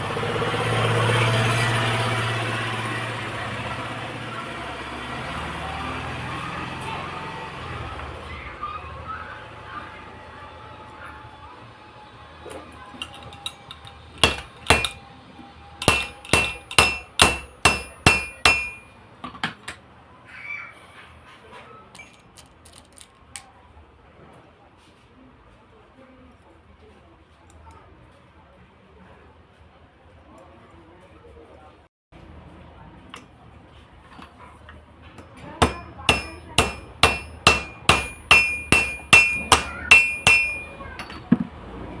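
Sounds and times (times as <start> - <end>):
hammer striking metal: 13.0 - 15.0, 15.8 - 19.0, 35.2 - 41.4.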